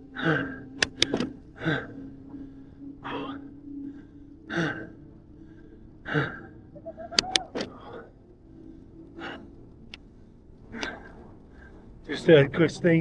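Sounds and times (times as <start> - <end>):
cyclist breathing hard: 0.0 - 12.0
sharp clicks: 0.8 - 1.6, 7.1 - 8.0, 10.8 - 11.1.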